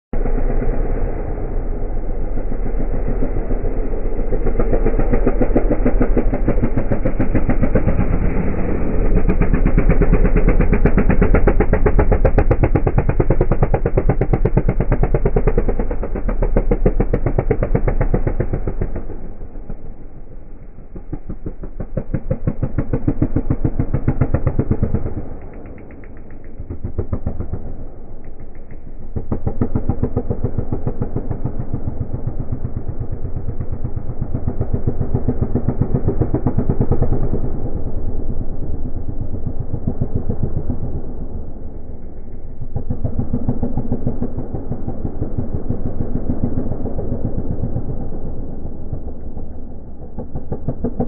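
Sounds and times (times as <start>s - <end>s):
motocross bike engine: 0.1s - 51.0s.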